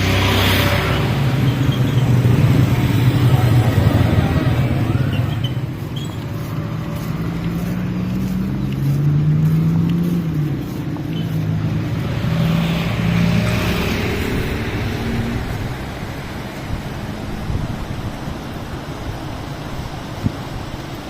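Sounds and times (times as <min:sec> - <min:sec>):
vehicle engine running: 0:00.0 - 0:12.2
road noise: 0:00.0 - 0:21.0.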